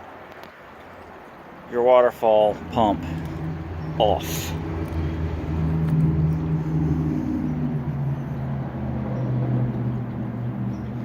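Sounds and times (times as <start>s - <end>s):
low mechanical hum: 2.5s - 11.0s.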